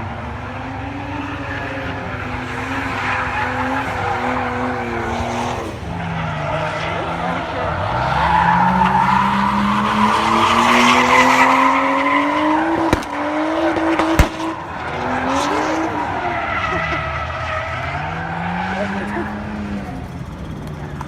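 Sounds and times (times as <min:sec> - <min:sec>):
car exhaust revving: 0:00.0 - 0:20.8
sharp exhaust cracks: 0:11.5 - 0:15.0.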